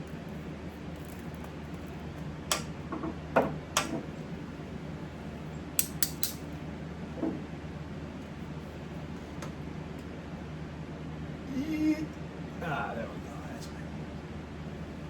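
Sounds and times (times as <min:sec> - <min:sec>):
steady low hum: 0:00.0 - 0:15.0
metal hand tools clicking: 0:05.8 - 0:06.4.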